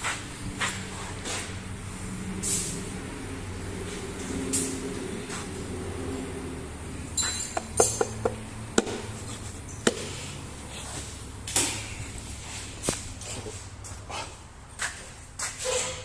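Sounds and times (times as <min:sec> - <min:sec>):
metallic knocks and clinks: 0:07.2 - 0:08.9.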